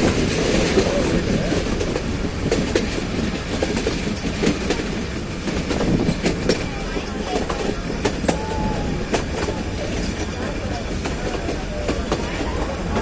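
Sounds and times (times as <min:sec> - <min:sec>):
train rumbling on track: 0:00.0 - 0:13.0
wheels clacking over rail joints: 0:09.1 - 0:13.0.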